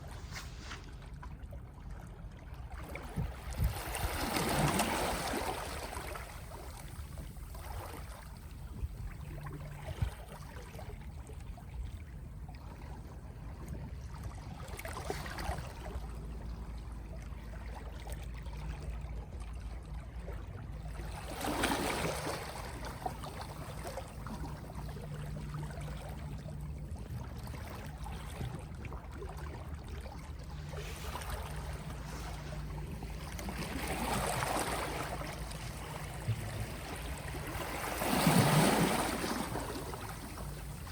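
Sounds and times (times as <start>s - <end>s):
low rumble of sea: 0.0s - 40.9s
small sea waves washing: 2.8s - 11.0s, 20.7s - 40.9s
water lapping knocks: 21.0s - 40.9s.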